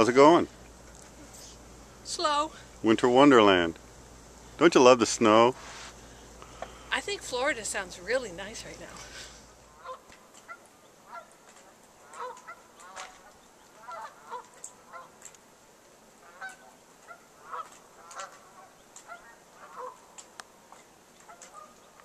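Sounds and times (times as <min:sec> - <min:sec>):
birds honking: 0:06.0 - 0:15.2, 0:16.1 - 0:20.2, 0:21.2 - 0:22.0.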